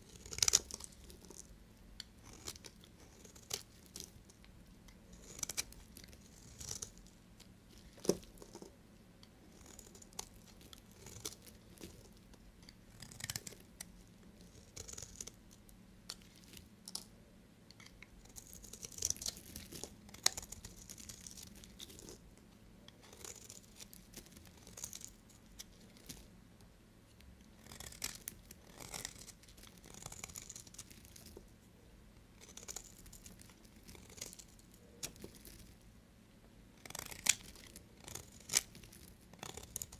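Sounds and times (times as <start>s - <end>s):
knife scraping through soap: 22.9s - 25.0s, 27.6s - 31.1s, 36.8s - 38.8s, 39.4s - 39.9s.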